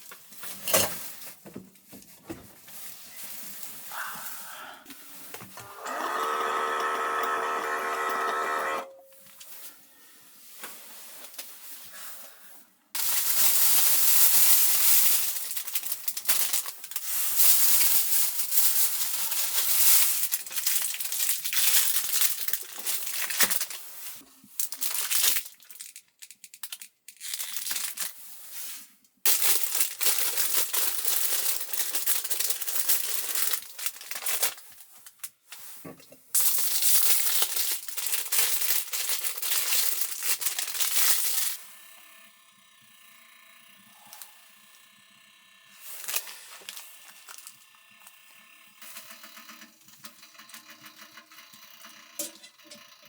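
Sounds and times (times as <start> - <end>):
crinkling and rustling: 0.0 - 3.9, 13.0 - 41.6, 45.8 - 48.2.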